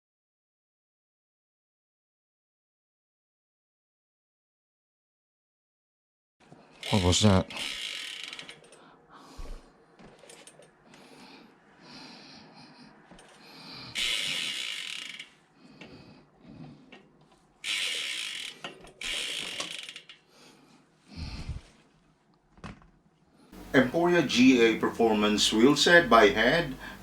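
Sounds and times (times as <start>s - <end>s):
bicycle freehub ticking: 6.8s - 8.9s, 13.2s - 16.0s, 16.9s - 20.3s.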